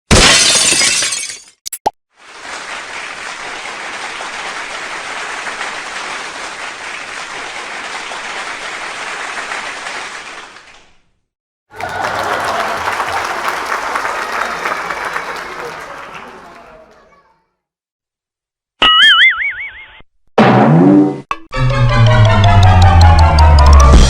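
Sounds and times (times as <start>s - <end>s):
crowd clapping: 2.2s - 11.0s, 11.7s - 17.4s
crowd voices: 11.7s - 17.4s.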